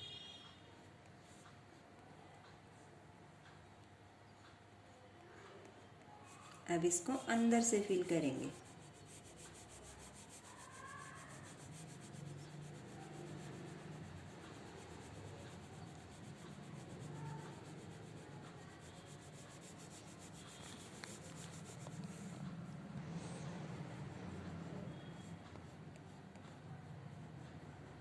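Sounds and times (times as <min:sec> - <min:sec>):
pencil scratching on paper: 0:06.2 - 0:22.6.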